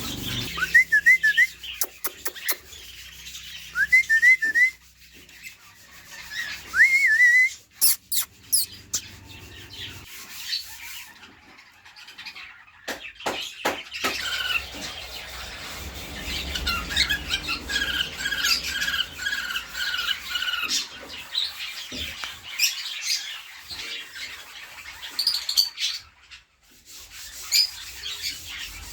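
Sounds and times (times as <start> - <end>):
quick repeated bird calls: 0.0 - 3.5, 7.8 - 10.7
birds chirping and whistling: 0.0 - 11.1, 11.8 - 26.4.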